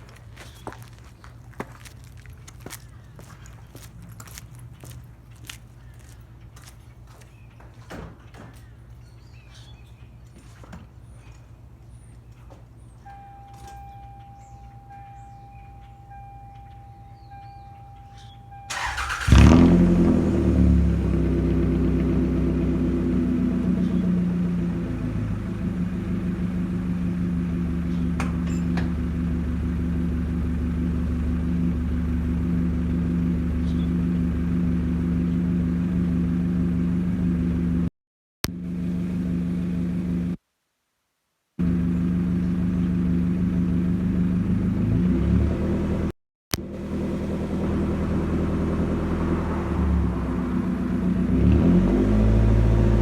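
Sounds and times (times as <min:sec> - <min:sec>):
car engine starting and idling: 0:13.0 - 0:40.4, 0:41.6 - 0:53.0.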